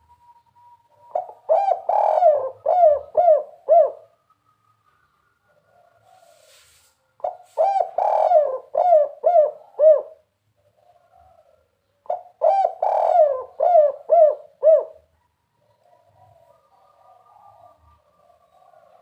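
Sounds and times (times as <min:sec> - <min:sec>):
dove cooing: 0:00.0 - 0:06.6, 0:07.2 - 0:19.0.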